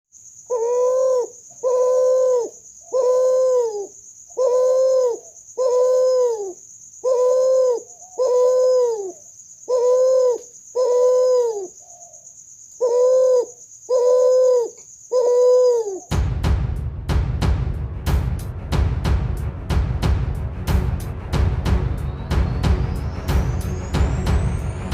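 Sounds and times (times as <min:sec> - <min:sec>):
dove cooing: 0:00.5 - 0:12.2, 0:12.8 - 0:16.1
music with drum hits: 0:16.1 - 0:24.9.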